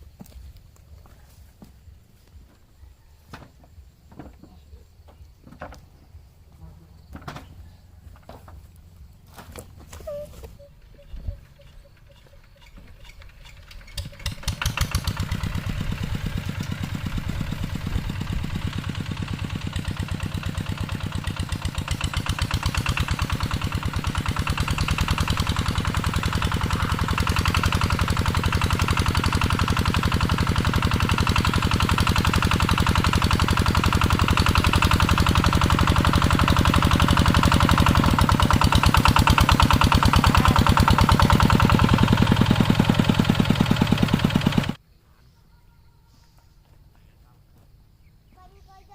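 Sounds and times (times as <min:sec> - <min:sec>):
tractor engine chugging: 0:06.0 - 0:44.8.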